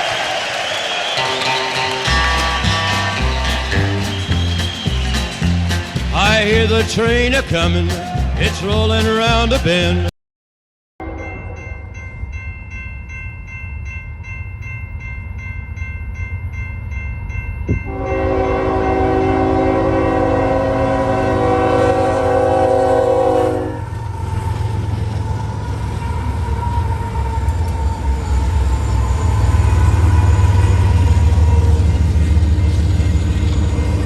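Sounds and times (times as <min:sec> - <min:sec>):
train rumbling past: 0:00.1 - 0:10.1, 0:11.0 - 0:34.0
locomotive air horn blast: 0:01.0 - 0:05.8, 0:17.9 - 0:23.9
bell ringing rapidly: 0:01.2 - 0:09.8.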